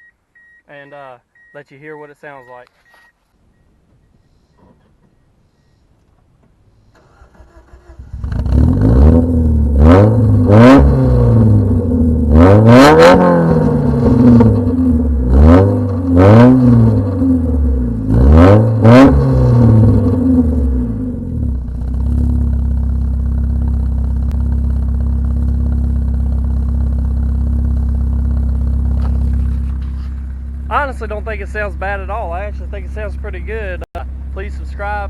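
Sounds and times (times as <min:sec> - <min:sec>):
car engine revving: 0:06.9 - 0:35.0.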